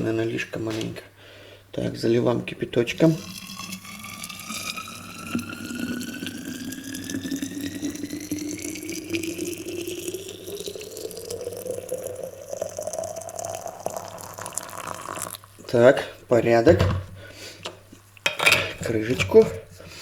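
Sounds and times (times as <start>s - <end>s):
water pouring into a container: 2.8s - 15.6s.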